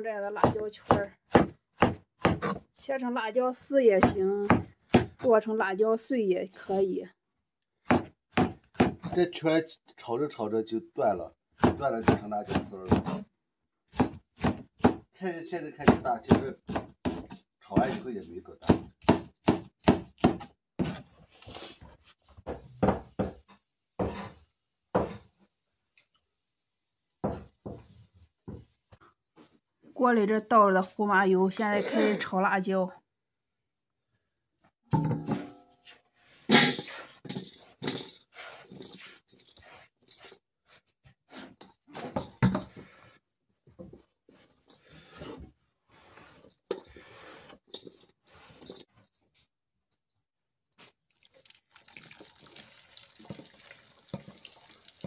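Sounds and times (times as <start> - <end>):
knife chopping on wooden board: 0.4 - 2.6, 4.0 - 5.2, 7.9 - 9.2, 11.6 - 13.2, 13.9 - 15.0, 15.8 - 18.0, 18.6 - 21.0, 24.9 - 25.3
chilies sizzling in a wok: 52.2 - 55.0.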